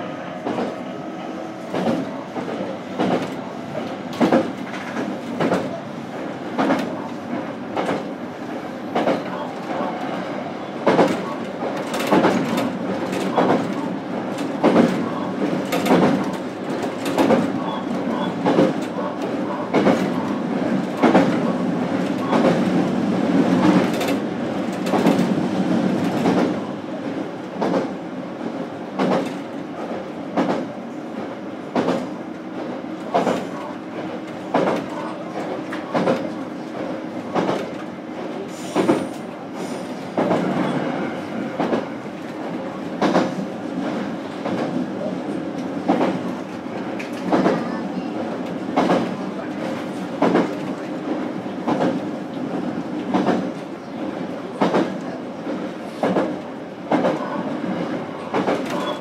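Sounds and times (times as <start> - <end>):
train wheels rumbling on rail: 0.0 - 59.0
clickety-clack over rail joints: 0.4 - 0.8, 1.5 - 59.0.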